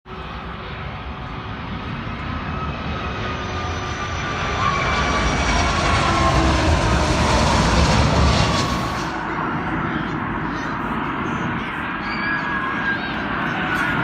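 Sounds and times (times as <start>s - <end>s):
jet engines running up: 0.1s - 10.6s.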